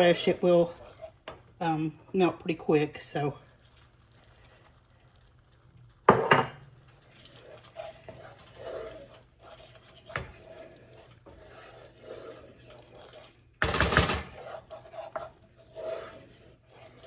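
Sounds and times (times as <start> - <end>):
utensil scraping and swishing: 7.0 - 13.5, 14.3 - 17.0
utensil clanking against pan: 13.6 - 15.4.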